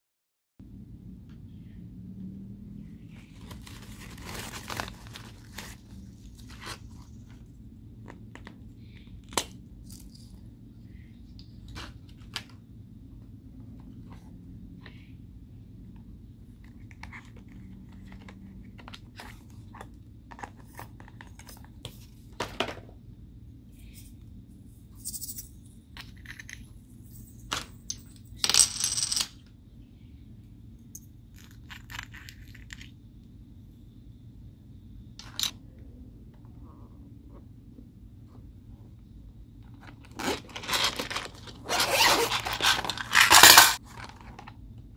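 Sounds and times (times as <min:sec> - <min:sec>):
small items clattering in container: 0:03.4 - 0:05.9, 0:39.9 - 0:44.5.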